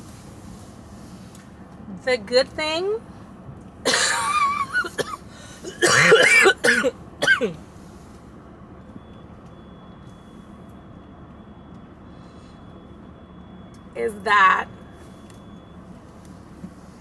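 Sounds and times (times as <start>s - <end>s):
low background hum: 0.0s - 17.0s
woman coughing: 3.8s - 7.6s.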